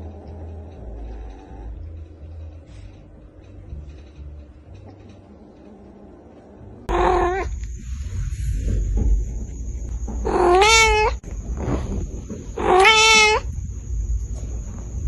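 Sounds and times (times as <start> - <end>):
low rumbling noise: 0.0 - 15.0
cat meowing: 6.9 - 7.6, 10.2 - 11.2, 12.6 - 13.5.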